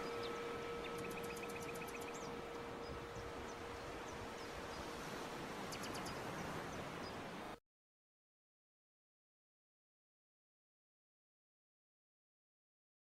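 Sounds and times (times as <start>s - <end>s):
steady low hum: 0.0s - 6.6s
bird trills: 0.0s - 7.2s
birds chirping: 0.0s - 7.4s.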